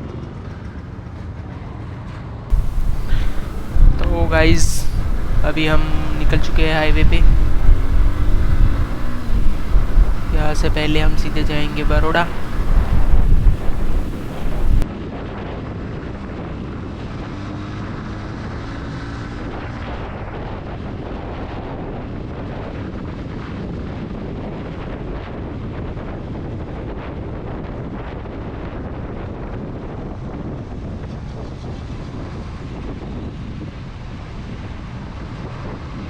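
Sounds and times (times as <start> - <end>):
motorcycle running: 2.5 - 14.8
wind rushing on microphone: 2.5 - 14.8.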